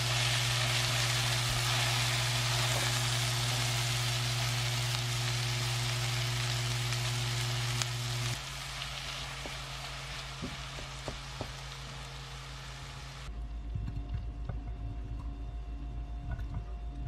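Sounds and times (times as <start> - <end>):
vegetables sizzling in a frying pan: 0.0 - 13.3
steady low hum: 12.0 - 17.0.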